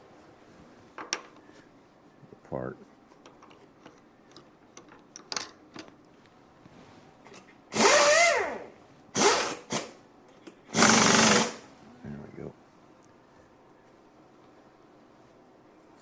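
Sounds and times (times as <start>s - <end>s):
power tool motor bursts: 7.7s - 10.0s, 10.7s - 11.6s.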